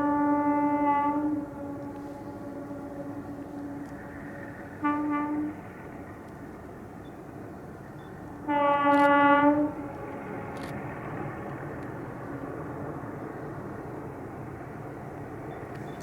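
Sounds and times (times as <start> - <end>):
train horn blast: 0.0 - 5.9, 8.4 - 10.6
train rumbling: 0.0 - 16.0.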